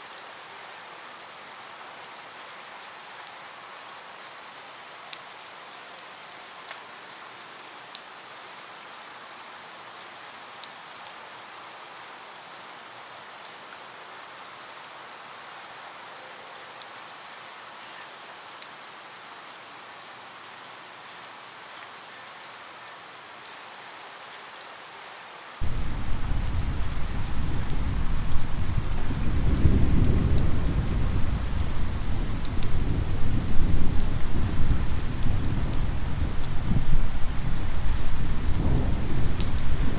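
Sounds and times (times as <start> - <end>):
steady rain falling: 0.0 - 39.9
low rumble of thunder: 25.6 - 39.9
sharp raindrop ticks: 25.6 - 39.9.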